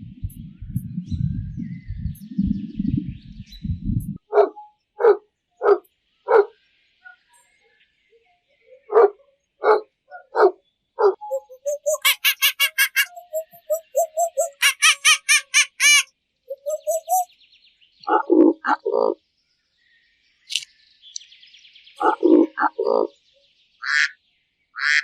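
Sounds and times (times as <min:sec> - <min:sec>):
dog barking: 0:04.3 - 0:07.2, 0:08.9 - 0:11.2
short high-pitched calls: 0:11.3 - 0:17.2.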